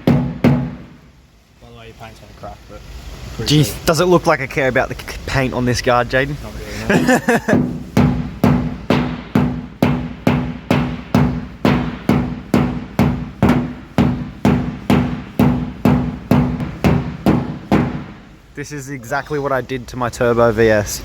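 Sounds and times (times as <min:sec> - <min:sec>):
mallet beating on steel: 0:00.0 - 0:01.0, 0:07.5 - 0:18.4.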